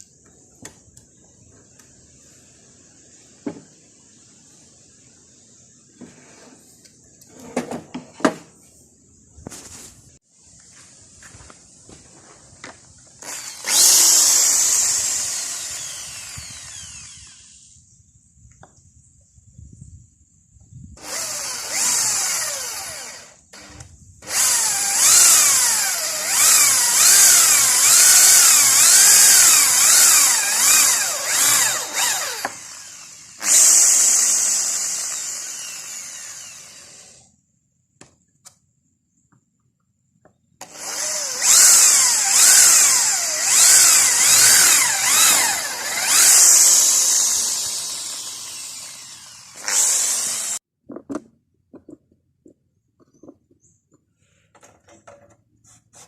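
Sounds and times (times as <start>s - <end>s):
power tool whining on wood: 13.2s - 17.8s, 21.0s - 37.3s, 40.6s - 50.6s.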